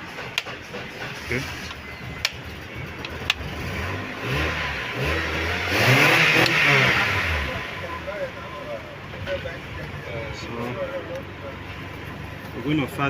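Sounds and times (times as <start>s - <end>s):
engine revving: 2.3s - 13.0s.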